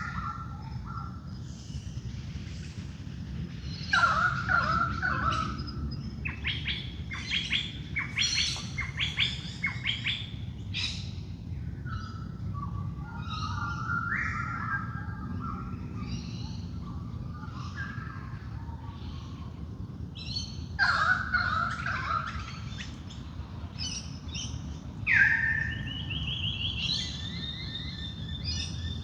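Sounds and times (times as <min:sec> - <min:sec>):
birds calling: 0:00.0 - 0:29.0
low background rumble: 0:00.0 - 0:29.0.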